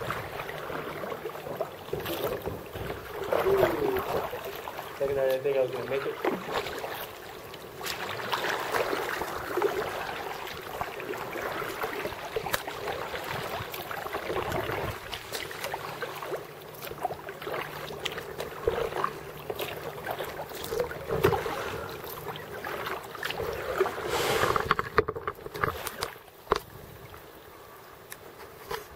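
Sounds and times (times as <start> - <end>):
water splashing around kayak: 0.0 - 28.9
knocks against boat: 1.8 - 4.3.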